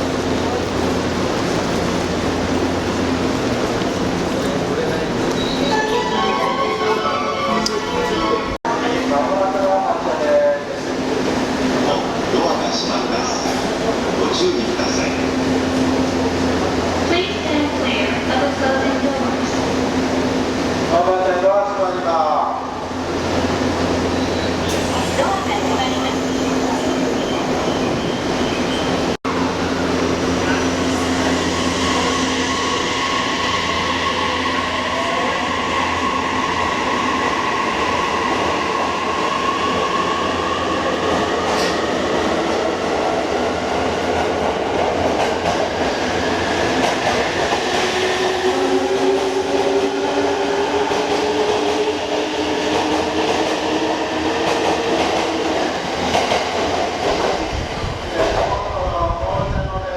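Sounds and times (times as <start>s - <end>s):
wheels rumbling on rails: 0.0s - 5.5s.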